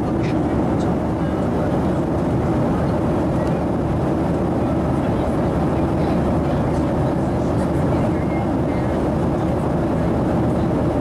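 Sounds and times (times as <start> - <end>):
airplane cabin noise: 0.0 - 11.0.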